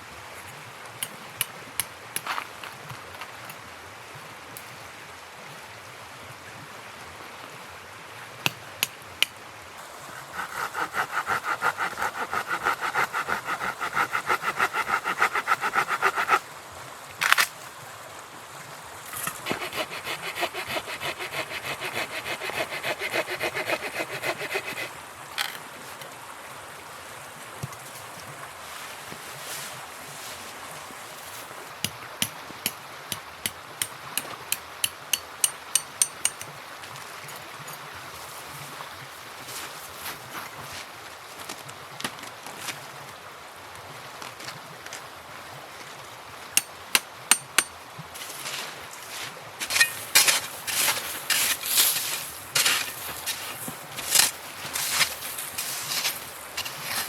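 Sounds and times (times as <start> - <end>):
hand saw cutting wood: 9.8 - 16.4, 19.1 - 25.6, 47.3 - 57.0.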